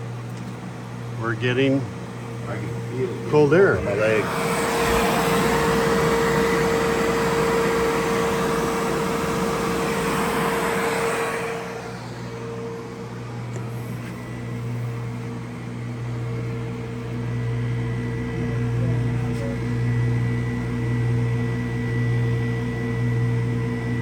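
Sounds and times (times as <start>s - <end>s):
low steady hum: 0.0s - 20.3s
air conditioner blowing air: 0.0s - 24.0s
steady tone: 2.3s - 13.2s.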